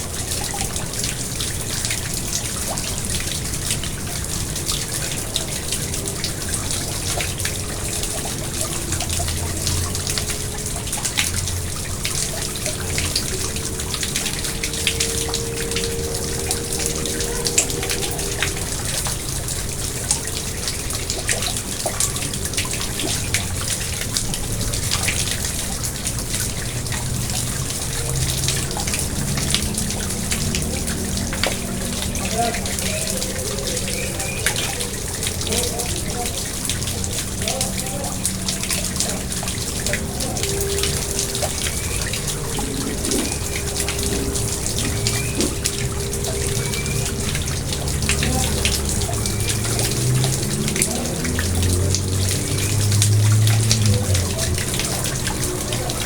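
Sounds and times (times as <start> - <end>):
pond water trickling: 0.0 - 56.0
small drips and splashes: 0.0 - 56.0.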